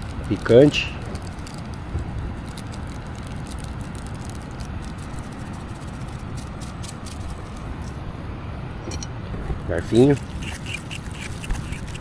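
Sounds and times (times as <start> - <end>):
campfire crackling: 0.0 - 8.3.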